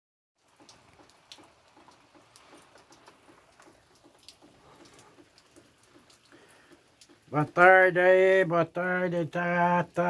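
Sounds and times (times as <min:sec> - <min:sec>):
light rain pattering and dripping: 0:00.4 - 0:10.0.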